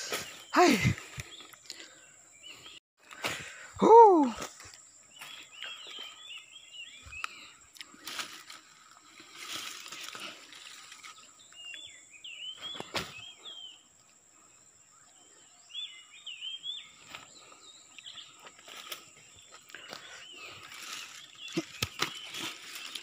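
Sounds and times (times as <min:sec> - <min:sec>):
small bird chirping: 0:04.7 - 0:14.2, 0:14.9 - 0:23.0
rustling through undergrowth: 0:07.2 - 0:13.7, 0:16.8 - 0:23.0.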